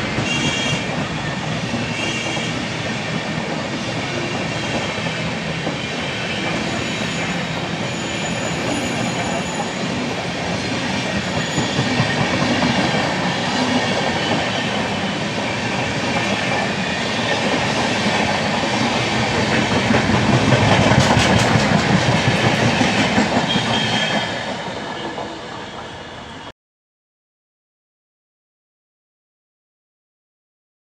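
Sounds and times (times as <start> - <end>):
train running on track: 0.0 - 26.5
wheels clacking over rail joints: 17.4 - 25.9.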